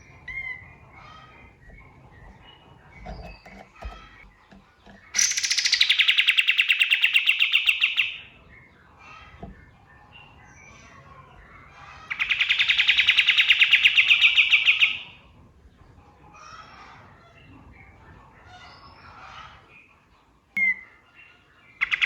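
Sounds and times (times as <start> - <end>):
bird singing fast trills: 0.0 - 8.4, 12.1 - 15.1
faint bird chirps: 16.4 - 22.0.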